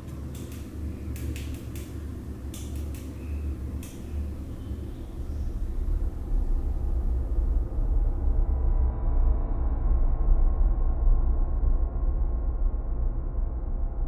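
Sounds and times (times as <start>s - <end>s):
sharp clicks: 0.0s - 4.2s
steady low drone: 0.0s - 14.0s.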